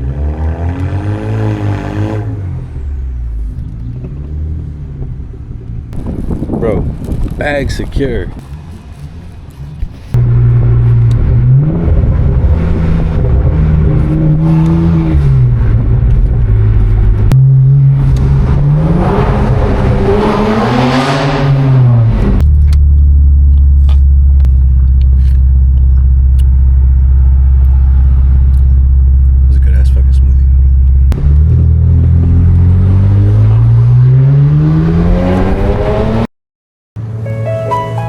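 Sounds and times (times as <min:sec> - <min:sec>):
car exhaust revving: 0:08.4 - 0:36.3.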